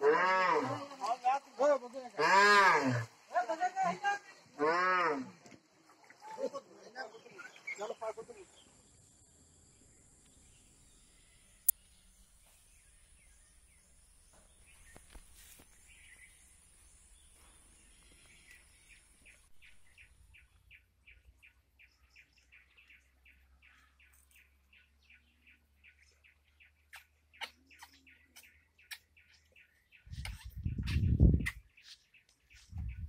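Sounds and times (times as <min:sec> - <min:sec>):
faint birdsong chirps: 0:05.4 - 0:33.0.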